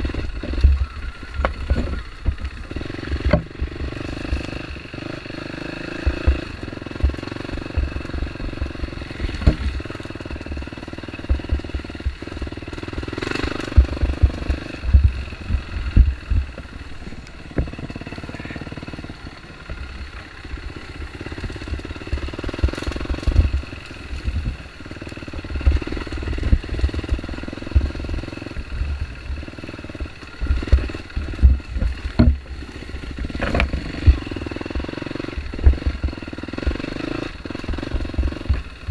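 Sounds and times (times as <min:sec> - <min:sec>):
dirt bike engine revving: 0:00.0 - 0:38.9
low thumps: 0:05.9 - 0:10.6, 0:11.2 - 0:18.0, 0:21.1 - 0:24.7, 0:25.4 - 0:36.8
sharp knocks: 0:30.4 - 0:32.5.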